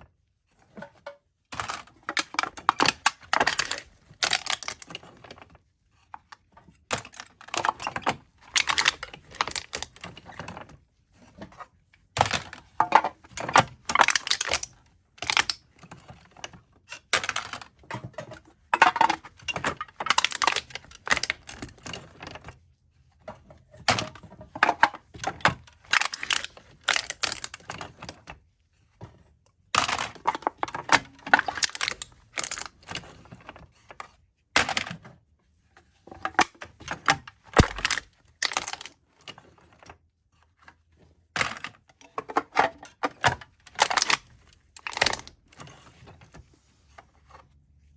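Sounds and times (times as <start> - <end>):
soda cans being crushed: 1.6 - 4.9, 8.5 - 10.0, 12.2 - 15.6, 18.8 - 21.8, 25.5 - 27.6, 29.8 - 33.0, 37.1 - 38.9, 42.3 - 45.3.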